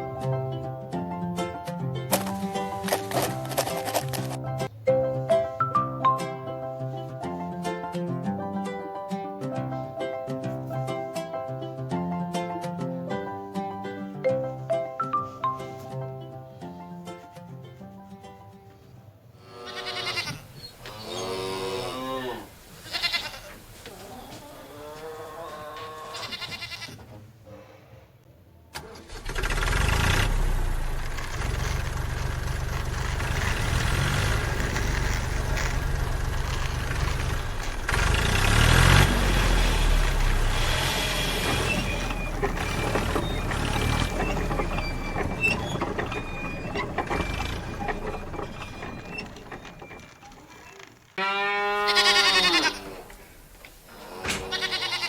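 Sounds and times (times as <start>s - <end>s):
tractor engine running: 0.0s - 6.2s, 28.8s - 51.2s.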